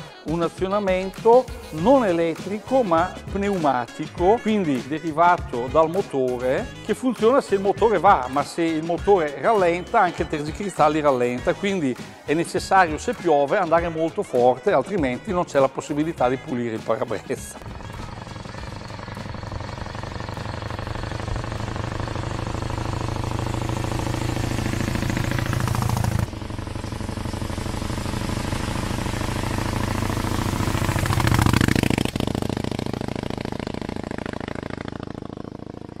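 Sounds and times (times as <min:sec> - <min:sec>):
car engine driving past: 0:17.6 - 0:35.4.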